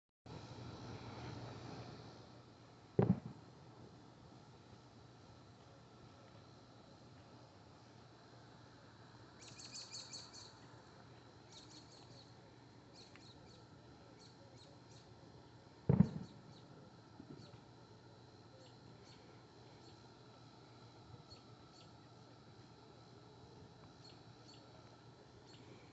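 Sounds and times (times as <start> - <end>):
faint outdoor background: 0.3 - 25.9
deep thump with rumble: 3.0 - 3.4, 15.9 - 16.3
bird chirping: 9.4 - 10.6, 11.5 - 12.3.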